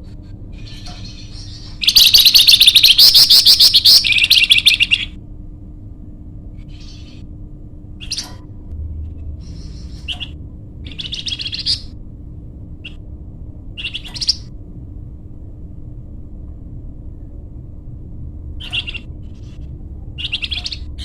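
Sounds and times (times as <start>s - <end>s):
faint steady hum: 0.0s - 21.0s
songbird chirping: 0.6s - 5.2s, 9.1s - 12.0s, 13.7s - 14.5s, 18.6s - 21.0s.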